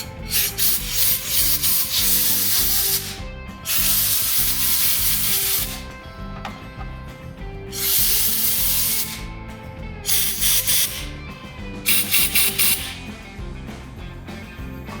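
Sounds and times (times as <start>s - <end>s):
compressed air blowgun hissing: 0.0s - 6.0s, 7.7s - 9.3s, 10.1s - 11.2s, 11.9s - 13.2s.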